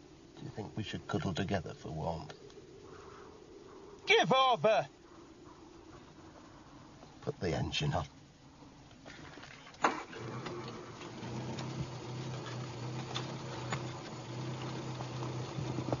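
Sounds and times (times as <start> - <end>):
car engine idling: 10.0 - 16.0.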